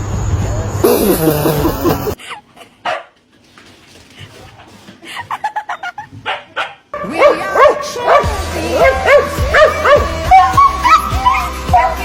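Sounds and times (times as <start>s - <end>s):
dog whimpering and yipping: 8.9s - 12.0s
dog whining: 8.9s - 12.0s.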